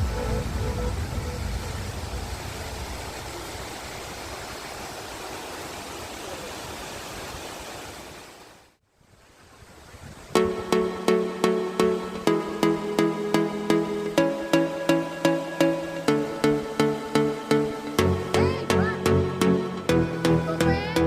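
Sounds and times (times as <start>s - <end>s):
music: 0.0s - 1.8s, 10.4s - 21.0s
waterfall rushing: 0.0s - 8.6s.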